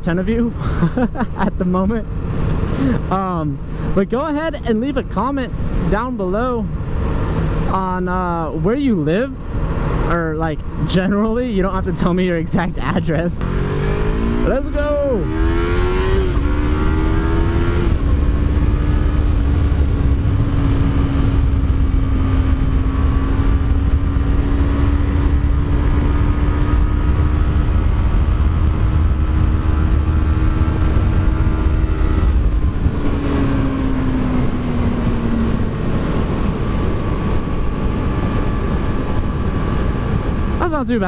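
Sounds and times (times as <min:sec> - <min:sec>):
low wind rumble: 0:00.0 - 0:41.0
motorcycle engine high-revving: 0:06.8 - 0:07.9, 0:13.4 - 0:40.7.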